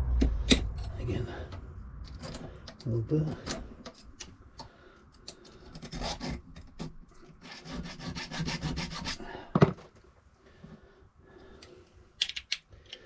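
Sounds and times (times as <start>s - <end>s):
file rasping on metal key: 5.2s - 9.3s.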